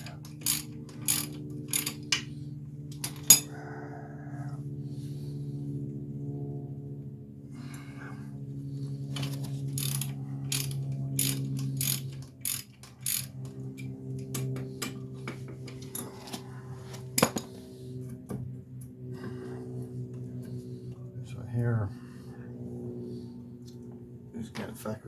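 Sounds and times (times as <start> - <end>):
ratchet wrench clicking: 0.0 - 2.3, 2.9 - 3.5, 9.8 - 13.6
steady low hum: 0.0 - 25.0.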